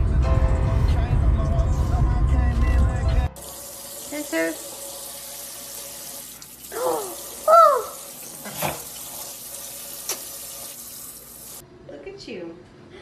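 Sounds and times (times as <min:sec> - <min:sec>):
tap water running: 0:03.3 - 0:11.6
parrot calls: 0:06.8 - 0:08.0.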